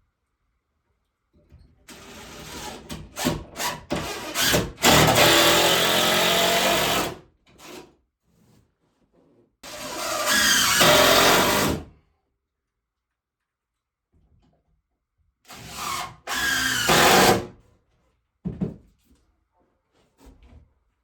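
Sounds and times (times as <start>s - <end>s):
power drill whirring: 1.9s - 7.8s, 9.7s - 11.8s, 15.5s - 17.5s.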